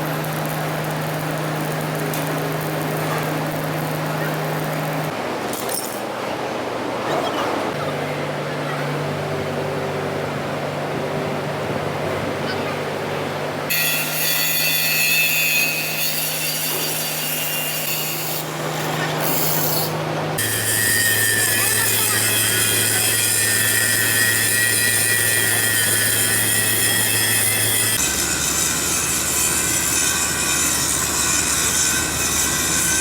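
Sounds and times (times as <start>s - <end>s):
power tool grinding metal: 13.7s - 33.0s.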